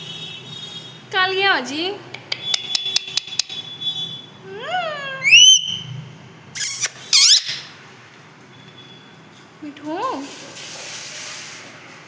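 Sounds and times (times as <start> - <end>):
parrot clicks: 2.1 - 3.6
parrot screeching: 5.1 - 5.9, 6.6 - 7.8
parrot whistling: 5.2 - 5.9, 6.6 - 7.7.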